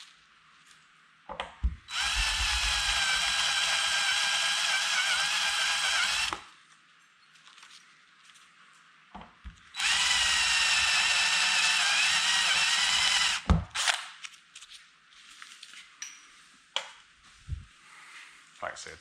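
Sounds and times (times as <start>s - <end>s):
power drill whining: 1.9s - 6.5s, 9.8s - 14.0s.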